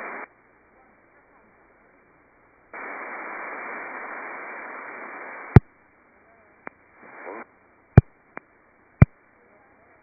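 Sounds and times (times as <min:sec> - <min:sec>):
radio static hiss: 0:00.0 - 0:00.4, 0:02.7 - 0:10.0
faint garbled radio transmission: 0:00.0 - 0:01.8, 0:02.8 - 0:08.1.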